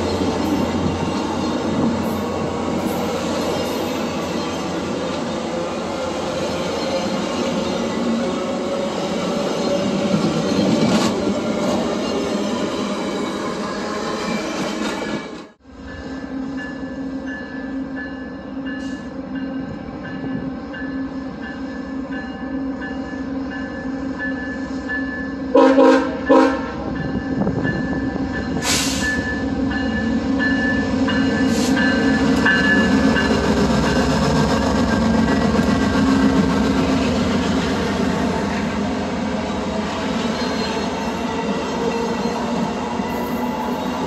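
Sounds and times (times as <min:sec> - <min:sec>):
diesel locomotive drone: 0:00.0 - 0:44.0
train horn blasts: 0:25.5 - 0:27.1.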